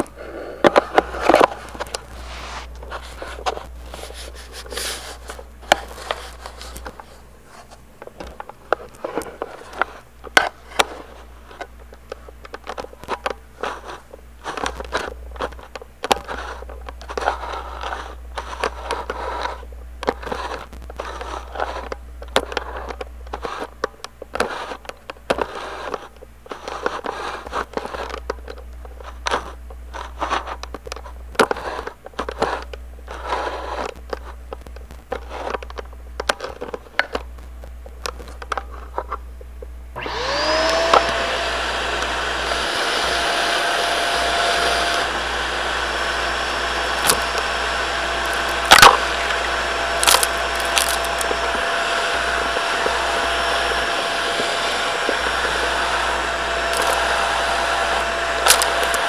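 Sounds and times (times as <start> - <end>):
light clicks and crinkling: 0.0 - 39.8
vacuum cleaner motor whine: 39.9 - 59.0
sharp clicks: 54.4 - 59.0.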